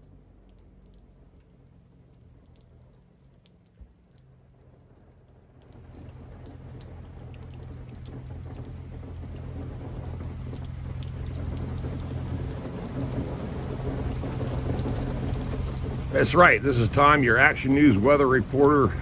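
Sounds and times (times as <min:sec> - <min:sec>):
rain and sleet pattering: 0:00.0 - 0:19.0
drops ticking: 0:00.1 - 0:19.0
steady low hum: 0:08.5 - 0:19.0.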